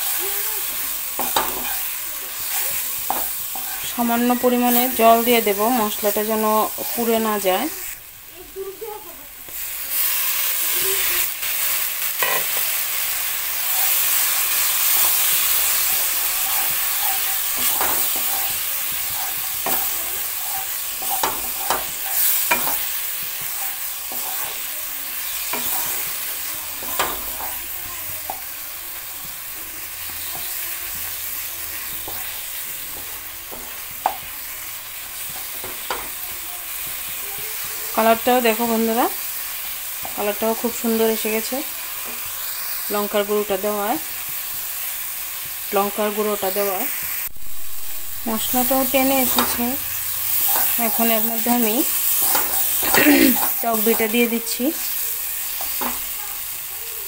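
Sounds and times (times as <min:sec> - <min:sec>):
wooden spatula stirring and scraping: 0:00.0 - 0:08.0, 0:13.5 - 0:42.7, 0:48.3 - 0:56.4
paste sizzling in oil: 0:00.0 - 0:57.0
spatula clacking against pan: 0:00.8 - 0:03.8, 0:13.7 - 0:28.5, 0:29.1 - 0:37.8.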